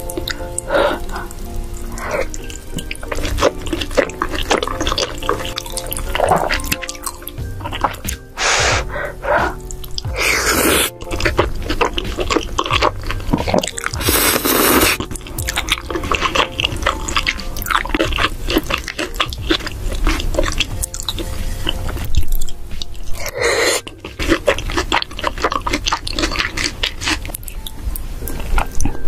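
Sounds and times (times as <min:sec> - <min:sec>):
chewing and wet mouth smacking: 0:00.0 - 0:08.4, 0:09.1 - 0:29.0
slurp from a spoon: 0:09.5 - 0:21.9, 0:23.1 - 0:27.4.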